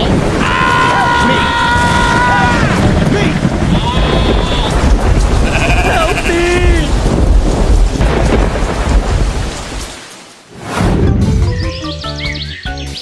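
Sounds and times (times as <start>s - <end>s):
rumbling thunder: 0.0s - 10.1s
rain: 0.0s - 11.0s
animal bleating: 3.7s - 6.8s.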